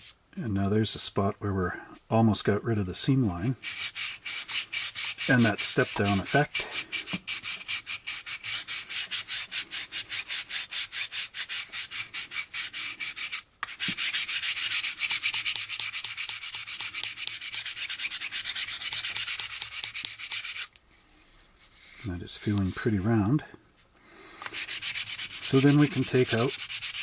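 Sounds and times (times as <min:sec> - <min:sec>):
sandpaper rubbing on plastic: 0:03.4 - 0:23.3, 0:24.4 - 0:27.0.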